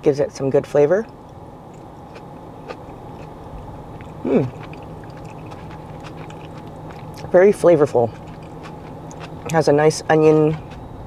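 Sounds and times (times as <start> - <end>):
low car interior hum: 0.0 - 11.0
person chewing food: 1.3 - 9.6, 10.5 - 10.9
wet mouth clicks: 4.0 - 7.3, 8.1 - 9.6
person humming mm of enjoyment: 4.2 - 4.7.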